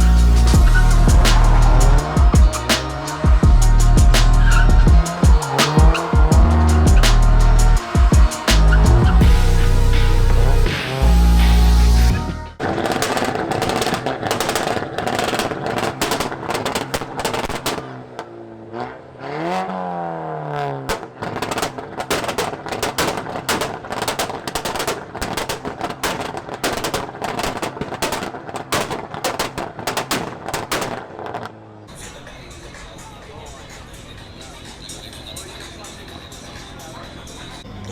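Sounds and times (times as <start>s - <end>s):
car exhaust popping and crackling: 0.0s - 11.1s, 12.6s - 37.9s
engine revving: 0.0s - 17.0s.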